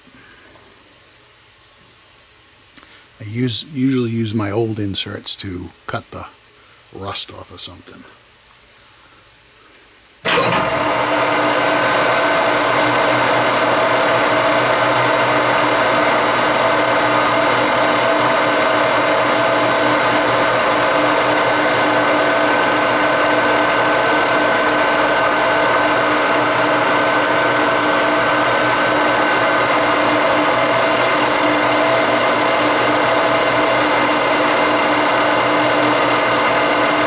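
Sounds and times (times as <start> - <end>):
metal lathe running: 19.5 - 22.5, 30.0 - 37.0.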